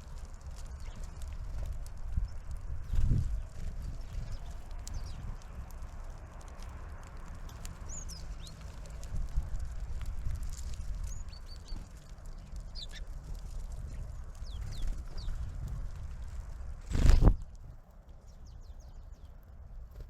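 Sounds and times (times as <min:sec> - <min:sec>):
steady low rumble: 0:00.0 - 0:20.0
small birds calling: 0:00.5 - 0:05.9, 0:07.5 - 0:09.1, 0:10.3 - 0:15.6, 0:18.1 - 0:19.4.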